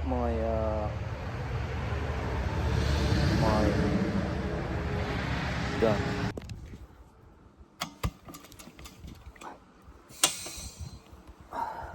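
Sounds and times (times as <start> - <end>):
engine running: 0.0 - 6.3.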